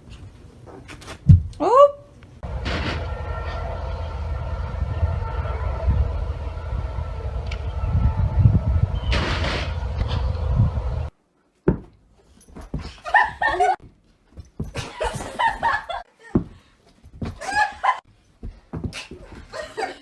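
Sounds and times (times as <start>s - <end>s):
low rumble: 2.4s - 11.1s.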